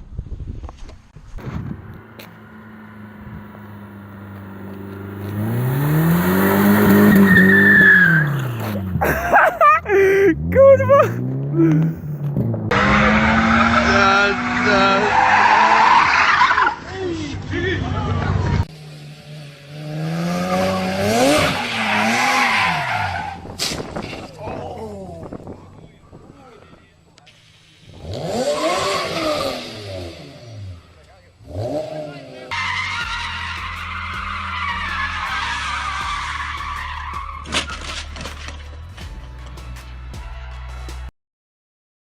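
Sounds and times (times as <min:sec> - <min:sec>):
tyre skid hissing: 0:01.4 - 0:10.3
car engine revving: 0:01.4 - 0:16.8, 0:18.4 - 0:24.2, 0:27.8 - 0:38.6
high squeal: 0:05.4 - 0:08.6.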